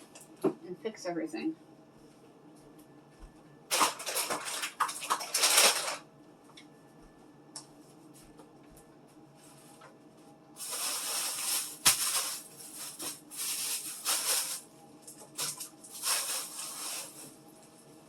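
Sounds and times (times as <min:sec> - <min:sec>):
food packages rustling: 0:03.7 - 0:06.1, 0:10.6 - 0:18.0.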